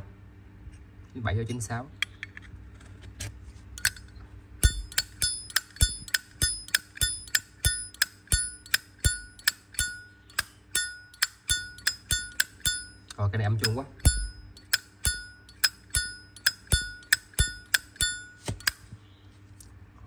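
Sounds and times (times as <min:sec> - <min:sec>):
lighter lid clacking and ringing: 0:04.6 - 0:18.8.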